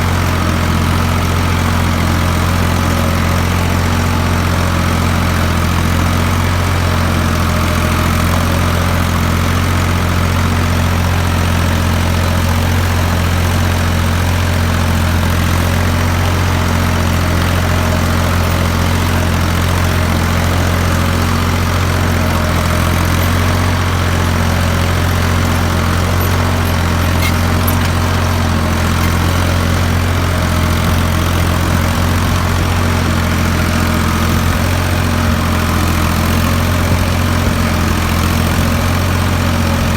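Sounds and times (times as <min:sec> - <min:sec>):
tractor engine running: 0:14.3 - 0:39.9.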